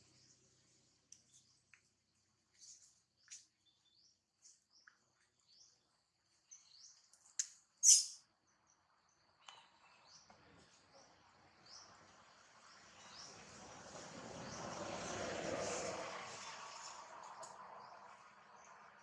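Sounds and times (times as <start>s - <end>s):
high-pitched bird chirps: 7.8s - 8.2s.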